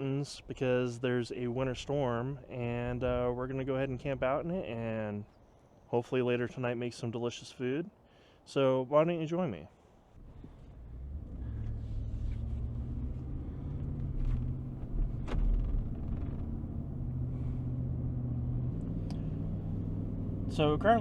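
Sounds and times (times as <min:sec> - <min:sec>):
road noise: 0:09.9 - 0:21.0
truck engine drone: 0:10.2 - 0:21.0.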